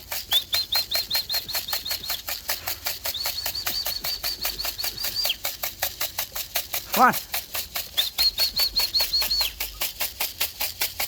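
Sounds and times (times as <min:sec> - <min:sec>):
rapid ticking or rattling: 0:00.0 - 0:11.0
bird chirping: 0:00.2 - 0:05.6, 0:07.8 - 0:09.8.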